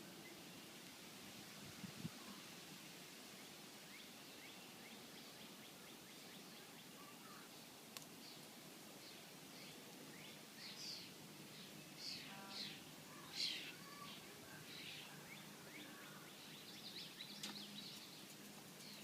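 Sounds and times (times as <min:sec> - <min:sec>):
small birds chirping: 0:03.3 - 0:19.0.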